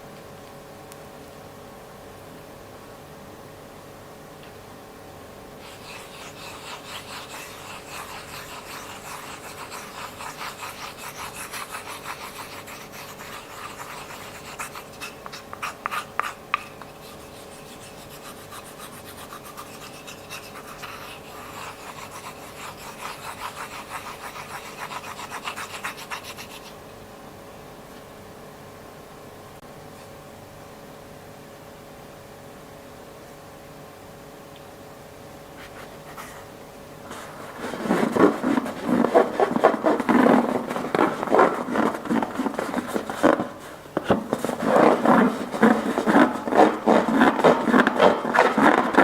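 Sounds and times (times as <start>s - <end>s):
slime rubbing by hand: 5.6s - 26.7s, 37.1s - 49.0s.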